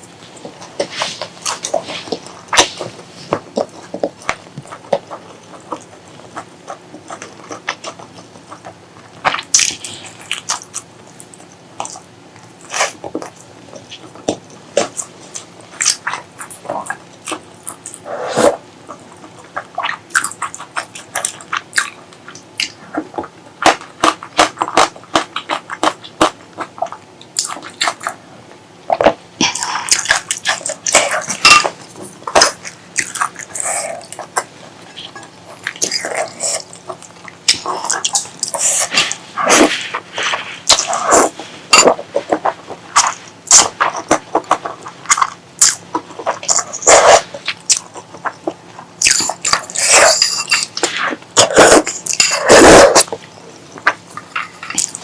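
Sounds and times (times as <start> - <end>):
chewing with wet mouth clicks: 18.9 - 28.2, 28.9 - 39.7, 40.7 - 53.2, 53.8 - 55.0.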